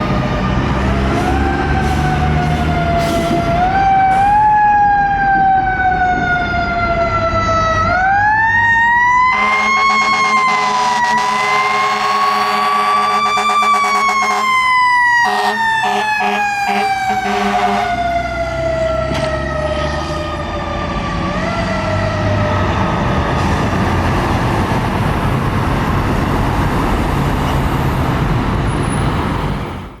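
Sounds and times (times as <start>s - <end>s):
mechanical fire engine siren: 0.0s - 23.8s
diesel engine rumbling: 0.0s - 30.0s
air horn blasts: 9.3s - 14.6s, 15.2s - 18.0s.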